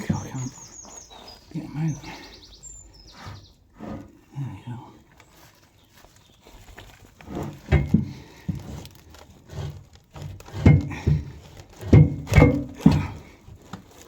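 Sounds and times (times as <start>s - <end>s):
wooden blocks knocking: 10.5s - 13.3s.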